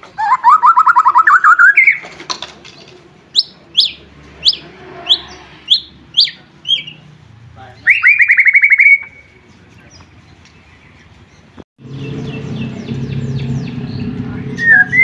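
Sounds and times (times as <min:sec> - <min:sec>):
bird whistles and trill: 0:00.2 - 0:02.1, 0:03.3 - 0:07.0, 0:07.8 - 0:09.4, 0:12.2 - 0:15.0.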